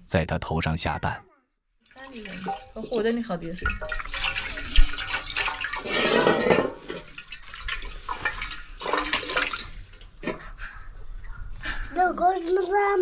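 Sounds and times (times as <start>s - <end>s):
water splashing in a basin: 1.8s - 10.4s.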